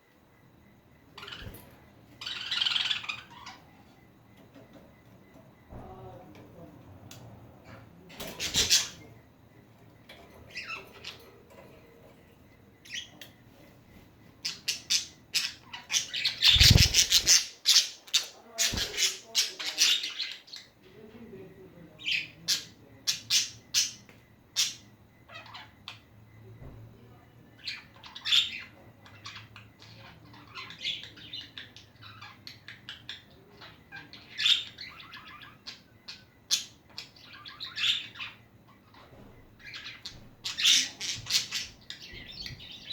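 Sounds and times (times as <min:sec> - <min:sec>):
budgerigars chirping and squawking: 0:02.2 - 0:03.7, 0:08.4 - 0:09.1, 0:14.4 - 0:20.7, 0:27.6 - 0:42.9.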